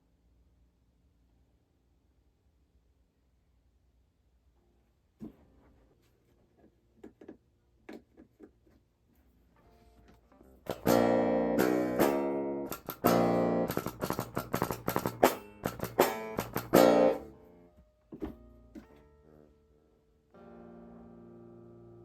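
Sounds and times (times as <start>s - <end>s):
plucked guitar note: 10.7s - 17.5s
electric guitar chords strummed: 10.7s - 17.6s, 20.3s - 22.0s.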